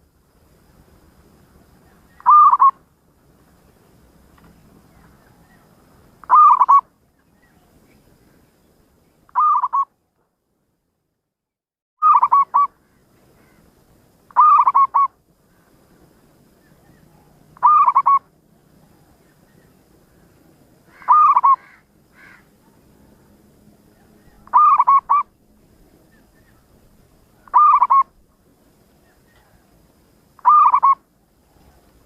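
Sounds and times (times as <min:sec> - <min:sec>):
dove cooing: 0:02.1 - 0:02.8, 0:06.2 - 0:06.8, 0:09.4 - 0:09.9, 0:12.0 - 0:12.7, 0:14.4 - 0:15.1, 0:16.8 - 0:19.2, 0:20.9 - 0:23.2, 0:24.0 - 0:25.3, 0:27.4 - 0:28.2, 0:30.4 - 0:32.0.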